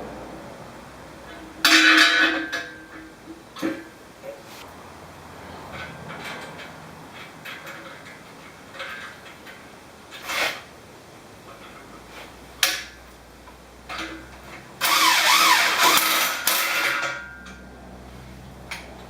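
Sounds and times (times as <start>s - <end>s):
power tool driving bolts: 14.8s - 17.3s.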